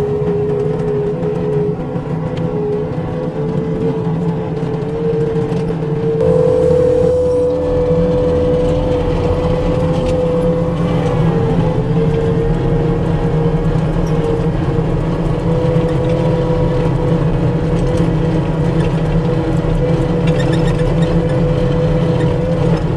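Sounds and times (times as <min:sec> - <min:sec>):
diesel engine running with whine: 0:06.2 - 0:22.9.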